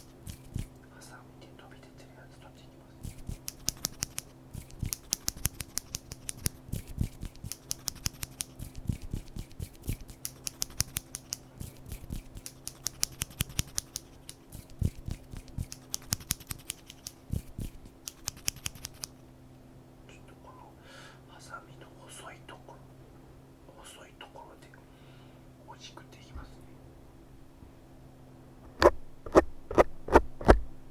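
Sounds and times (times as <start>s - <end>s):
faint low hum: 0.0s - 30.9s
crisp snipping clicks: 3.0s - 19.2s.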